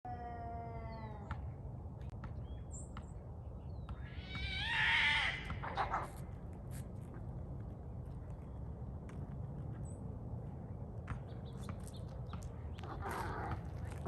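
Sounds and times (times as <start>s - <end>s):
cats yowling: 12.9s - 13.6s.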